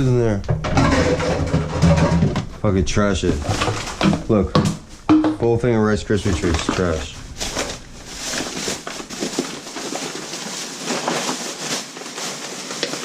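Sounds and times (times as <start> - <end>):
plastic bag rustling and crinkling: 0.7 - 5.2, 5.8 - 13.0.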